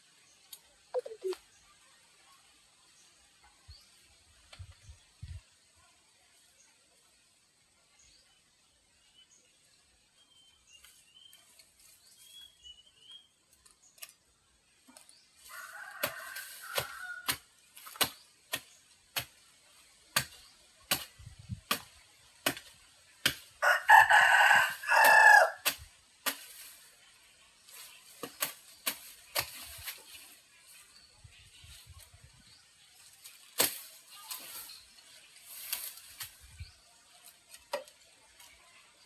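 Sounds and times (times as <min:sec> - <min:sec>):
faint high bird chirps: 0:00.9 - 0:01.8
rooster crowing: 0:23.6 - 0:25.6.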